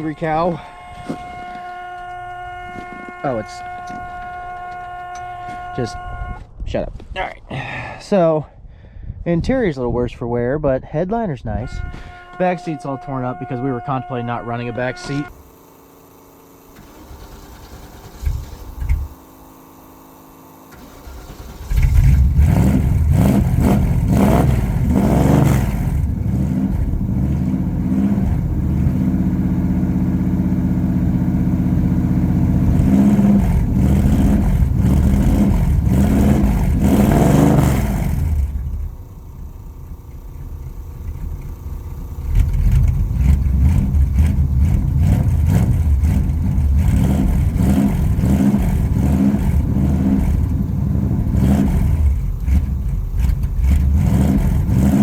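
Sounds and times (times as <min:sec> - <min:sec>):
car engine idling: 0:14.8 - 0:55.0
car engine starting: 0:15.2 - 0:55.0
car engine revving: 0:20.7 - 0:39.8, 0:42.1 - 0:55.0.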